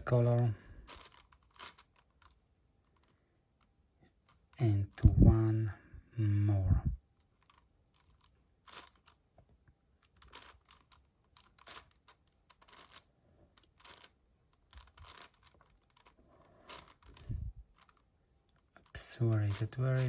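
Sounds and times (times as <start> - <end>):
puzzle cube layers clicking: 10.1 - 13.0.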